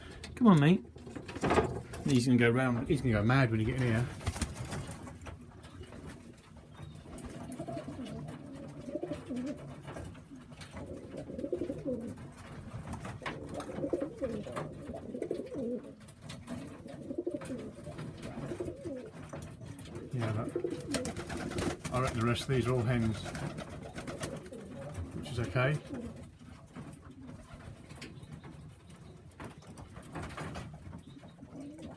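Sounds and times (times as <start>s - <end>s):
pigeon cooing: 6.8s - 12.5s, 13.2s - 21.8s, 23.9s - 28.4s, 31.1s - 31.9s.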